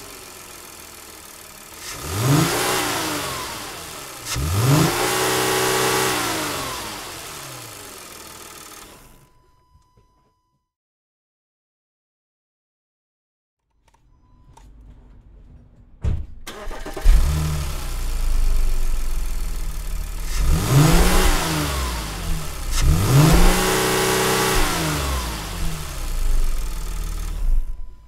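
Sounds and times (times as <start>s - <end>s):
car engine revving: 0.0s - 9.2s, 16.5s - 28.0s
car engine idling: 0.0s - 9.4s, 14.0s - 28.0s
car engine cranking: 0.0s - 9.5s, 13.7s - 28.0s.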